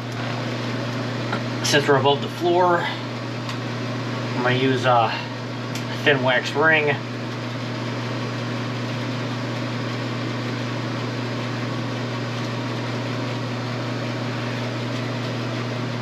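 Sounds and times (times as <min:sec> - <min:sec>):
machine hum with low drone: 0:00.0 - 0:16.0.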